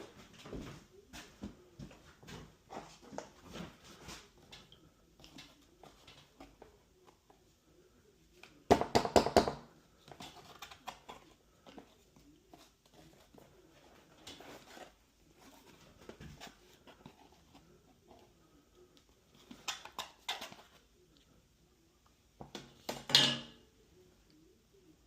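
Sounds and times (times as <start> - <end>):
tools tapping and clattering: 22.4 - 23.6.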